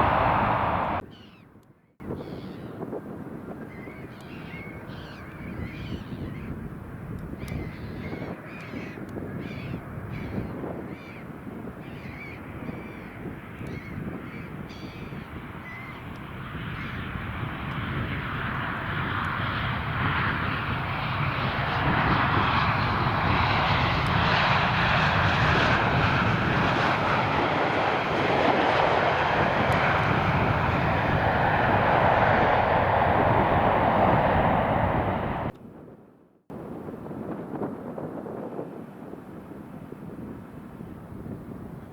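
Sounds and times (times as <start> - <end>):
jet engines roaring: 0.0 - 1.0, 15.3 - 35.6.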